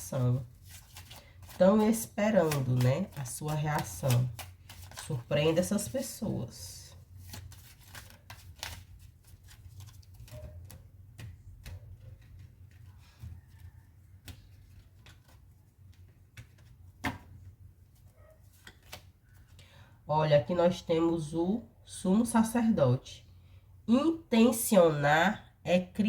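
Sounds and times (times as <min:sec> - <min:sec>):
cards being shuffled: 0:00.0 - 0:06.2, 0:07.1 - 0:19.6
low steady hum: 0:00.0 - 0:26.0.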